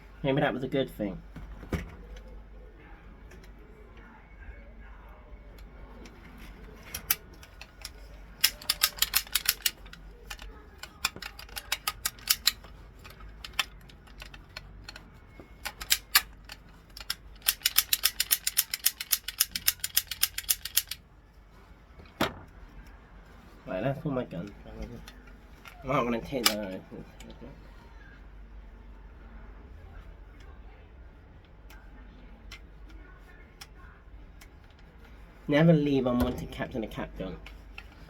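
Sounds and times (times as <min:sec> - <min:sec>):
toy cap gun clicking: 0:07.1 - 0:15.0, 0:15.6 - 0:21.0.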